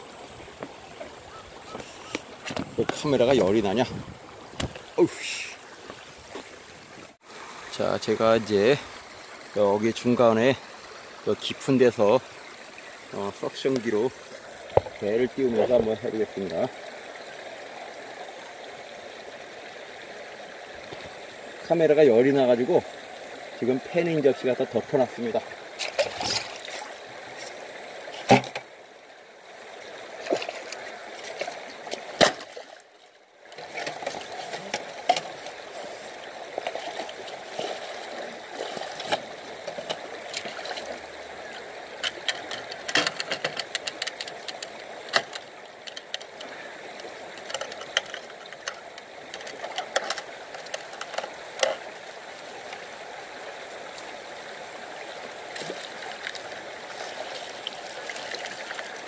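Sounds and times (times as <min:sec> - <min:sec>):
water splashing around wader: 0:25.0 - 0:28.7, 0:29.8 - 0:59.0
knocks and clicks of equipment: 0:42.0 - 0:46.4.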